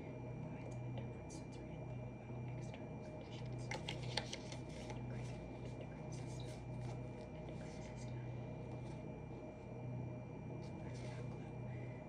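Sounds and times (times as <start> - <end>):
steady low hum: 0.0 - 12.0
clicks and rustles of desk work: 3.2 - 5.0.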